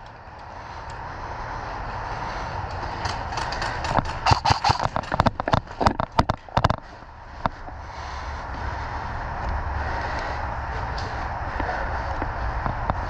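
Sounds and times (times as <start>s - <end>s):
airsoft guns firing: 3.0s - 5.2s.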